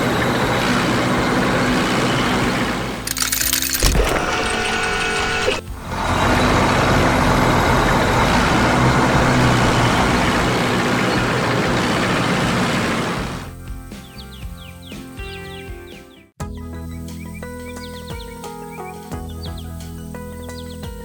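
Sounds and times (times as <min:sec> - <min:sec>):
vehicle engine running: 0:03.1 - 0:13.6.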